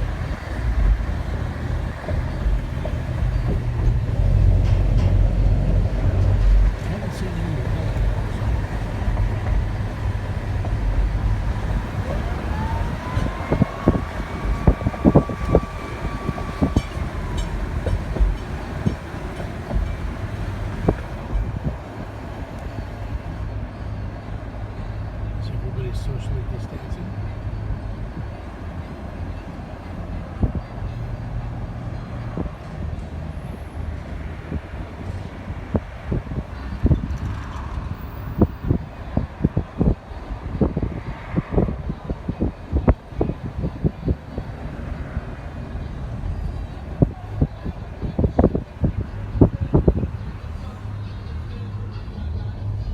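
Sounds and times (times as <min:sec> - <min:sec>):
wind thumps on microphone: 0:00.0 - 0:23.4, 0:32.3 - 0:50.5
boat engine whining: 0:00.0 - 0:52.9.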